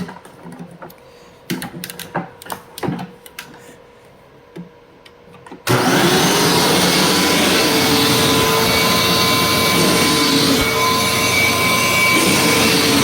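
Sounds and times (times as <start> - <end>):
vacuum cleaner motor whining: 5.6 - 13.0.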